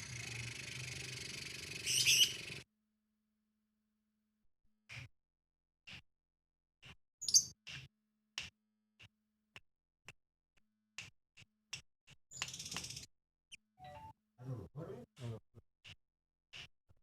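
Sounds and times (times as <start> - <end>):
songbird chip calls: 1.8 - 2.4.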